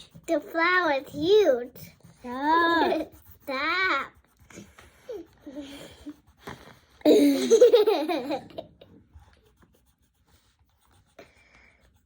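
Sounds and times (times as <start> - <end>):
child laughing: 2.3 - 4.0, 7.0 - 8.9.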